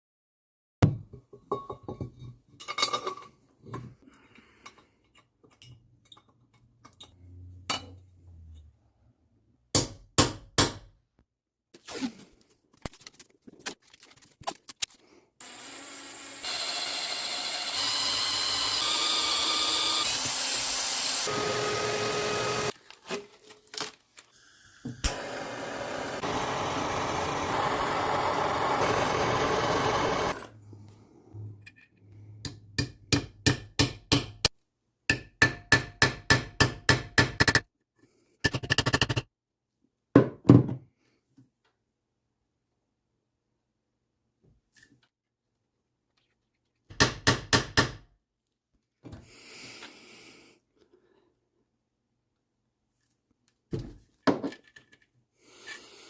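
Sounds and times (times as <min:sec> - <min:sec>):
power tool running: 0:15.4 - 0:22.8, 0:25.0 - 0:30.5.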